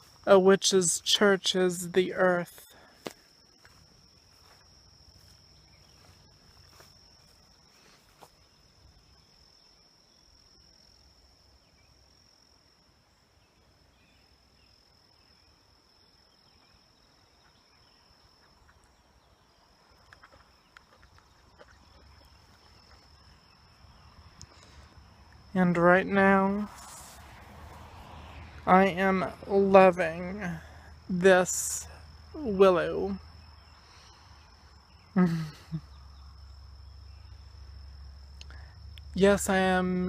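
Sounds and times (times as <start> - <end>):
faint ticks: 38.4 - 39.1.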